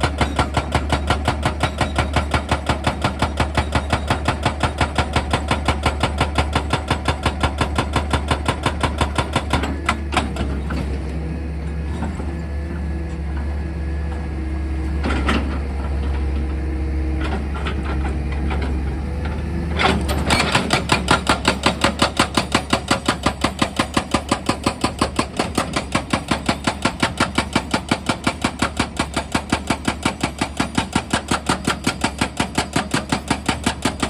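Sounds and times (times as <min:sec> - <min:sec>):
hydraulic rock drill hammering: 0:00.0 - 0:11.1, 0:11.8 - 0:34.0
diesel engine drone: 0:10.5 - 0:20.5.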